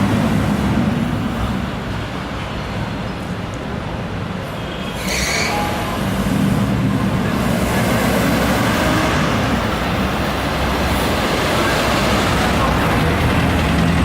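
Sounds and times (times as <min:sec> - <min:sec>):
traffic rumble of passing cars: 0:00.0 - 0:14.0
brief high tone: 0:05.4 - 0:06.0.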